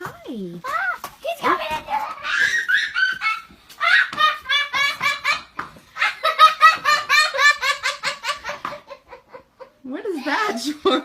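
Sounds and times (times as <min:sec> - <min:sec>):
high-pitched laughter: 0:01.9 - 0:11.0.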